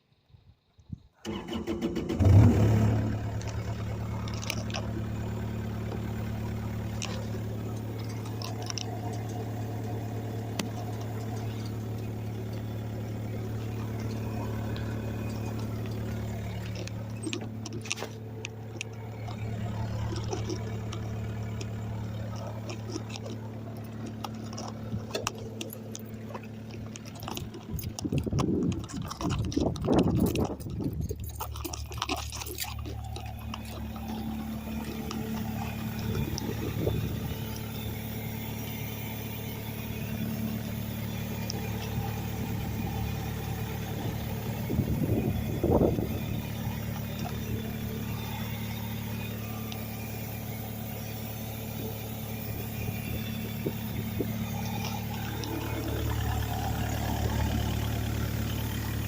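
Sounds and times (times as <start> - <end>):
diesel engine idling: 0.0 - 59.0
rustling: 3.3 - 37.7.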